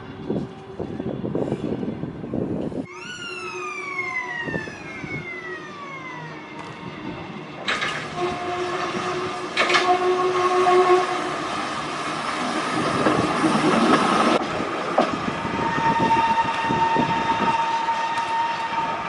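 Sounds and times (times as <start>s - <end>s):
electric train motor whine: 2.9s - 12.0s.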